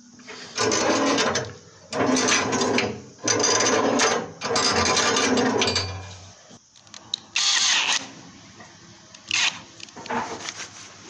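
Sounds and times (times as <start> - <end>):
brush scrubbing inside chimney flue: 0.0 - 6.6, 10.0 - 11.0.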